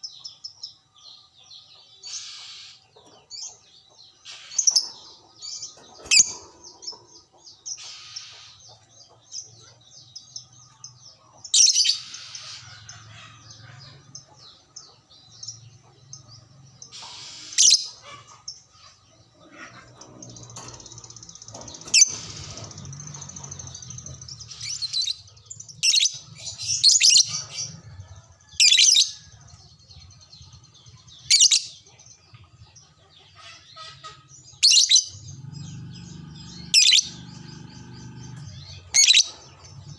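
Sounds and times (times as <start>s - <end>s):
shrill bird calls: 2.0s - 2.9s, 16.9s - 20.0s.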